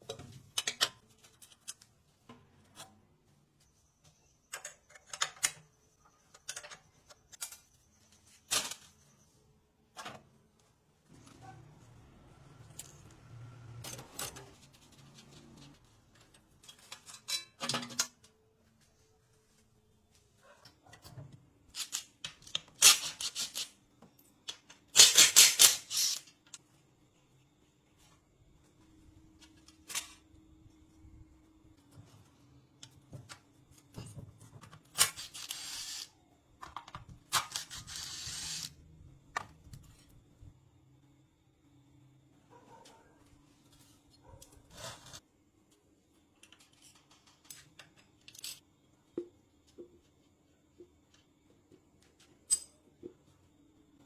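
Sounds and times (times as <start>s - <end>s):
metal parts clicking and clattering: 13.8s - 18.2s.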